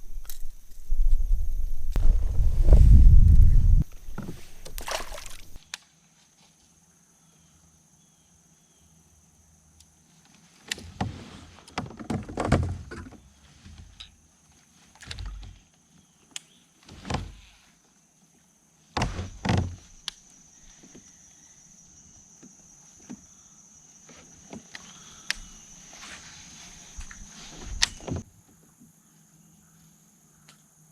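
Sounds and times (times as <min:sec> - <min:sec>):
knocks and bumps in kayak: 0:19.0 - 0:19.8.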